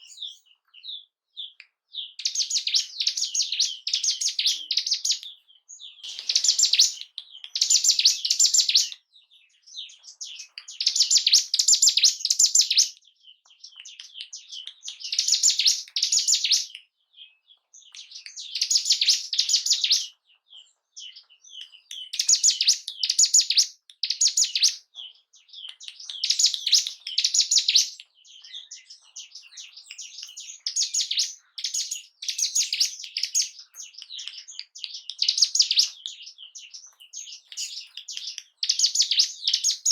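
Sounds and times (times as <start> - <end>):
bird singing chattering phrases: 0.0 - 39.9.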